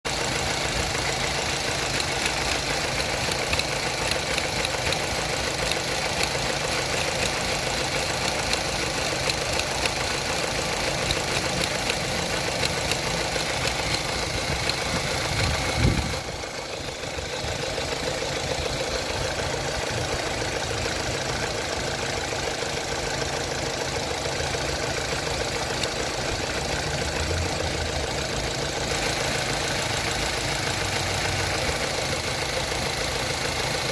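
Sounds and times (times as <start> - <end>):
car engine idling: 0.1 - 33.9.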